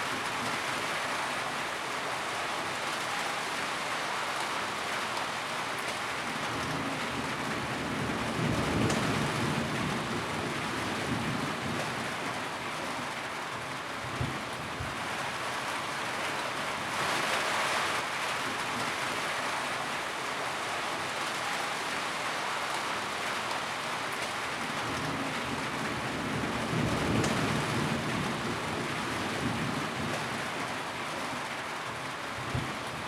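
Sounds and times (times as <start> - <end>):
rain on a tin roof: 0.0 - 33.0.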